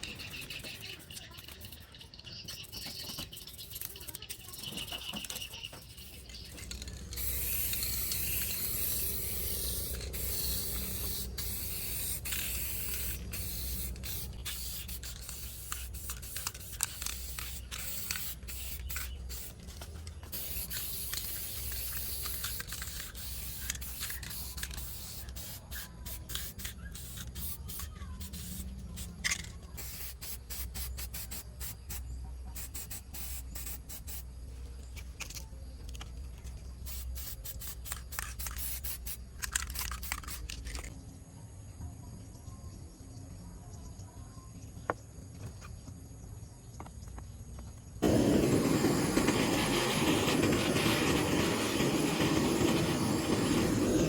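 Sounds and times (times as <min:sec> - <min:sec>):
spray hissing: 0:02.6 - 0:34.3, 0:36.8 - 0:39.2, 0:48.0 - 0:54.0.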